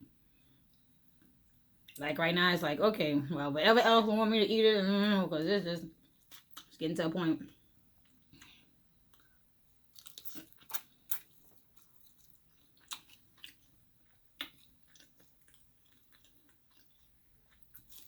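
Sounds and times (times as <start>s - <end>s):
person chewing and mouth smacks: 6.0s - 6.7s, 7.4s - 18.0s.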